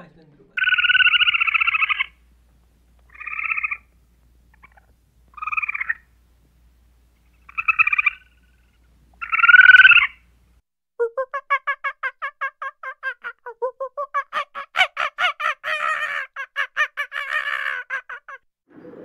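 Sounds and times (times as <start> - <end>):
squirrel chattering: 0.6 - 2.2, 3.1 - 3.9, 4.5 - 6.0, 7.4 - 8.4, 9.2 - 10.2, 11.2 - 18.4.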